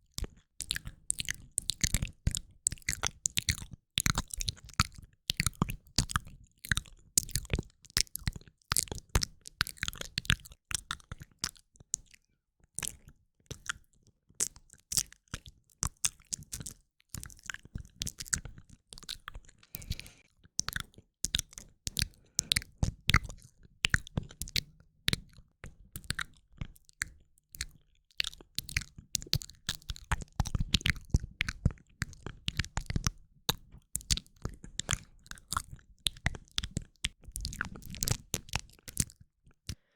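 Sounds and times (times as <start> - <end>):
mouth clicks: 19.8 - 20.2.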